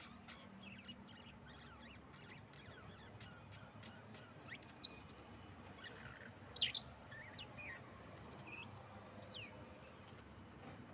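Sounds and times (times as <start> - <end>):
budgerigars chirping: 0.0 - 5.2, 5.8 - 7.8.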